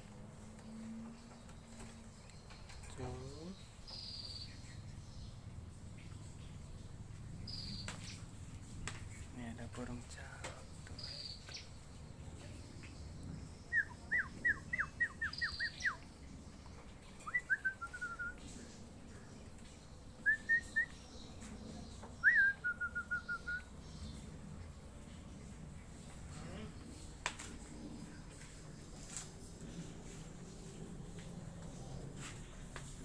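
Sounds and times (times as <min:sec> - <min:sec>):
bird whistling: 0:13.7 - 0:16.0, 0:17.2 - 0:18.4, 0:20.2 - 0:21.0, 0:22.2 - 0:23.7.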